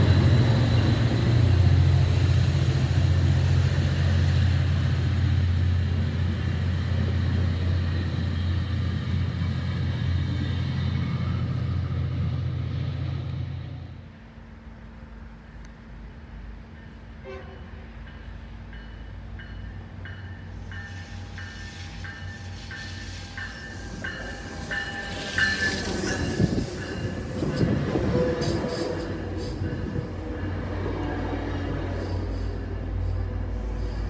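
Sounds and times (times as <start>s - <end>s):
train cars rumbling: 0.0s - 34.0s
train passing: 0.0s - 34.0s
crossing bell ringing: 16.8s - 30.8s
train horn: 17.2s - 18.0s.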